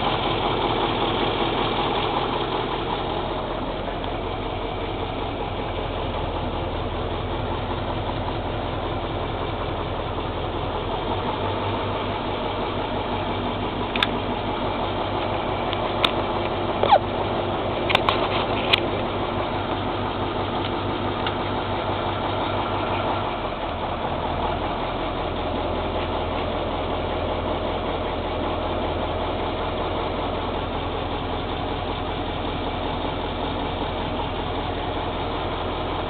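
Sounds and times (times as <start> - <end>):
truck diesel engine idling: 0.0 - 36.0
sharp clicks: 13.9 - 14.2.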